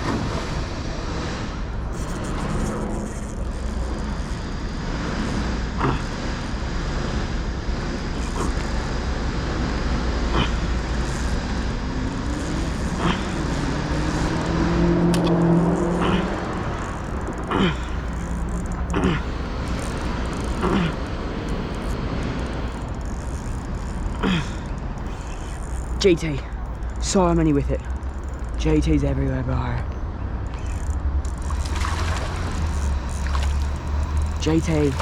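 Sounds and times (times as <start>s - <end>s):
road traffic rumble: 0.0s - 35.0s
vehicle passing: 7.0s - 23.9s, 29.8s - 35.0s.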